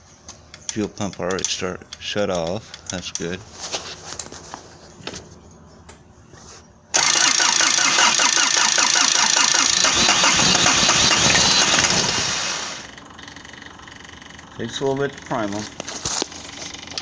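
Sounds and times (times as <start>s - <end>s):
starter cranking diesel engine: 7.0s - 13.7s.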